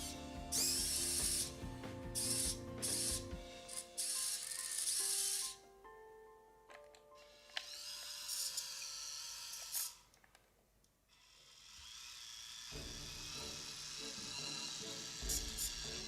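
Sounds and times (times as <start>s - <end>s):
small electric motor whirring: 0.0s - 1.6s, 2.2s - 5.6s, 7.2s - 10.1s, 11.1s - 16.0s
background music: 0.0s - 7.6s, 12.8s - 16.0s.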